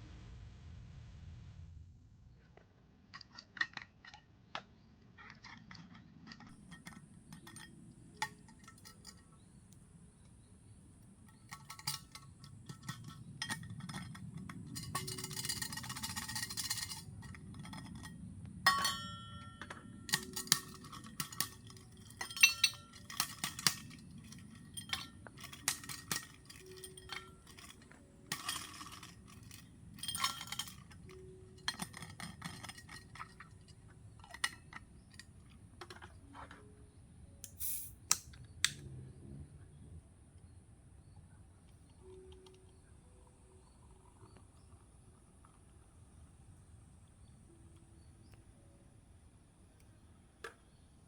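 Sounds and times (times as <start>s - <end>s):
dishes and glassware clinking: 18.7s - 35.2s.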